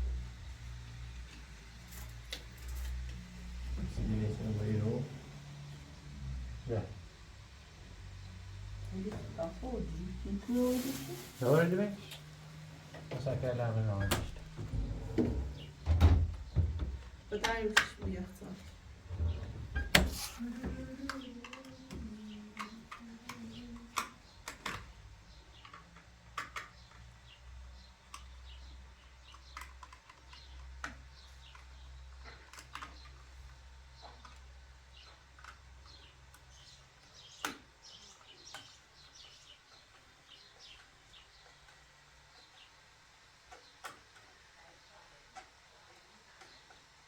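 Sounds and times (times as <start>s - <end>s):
faint low hum: 0.0s - 25.8s.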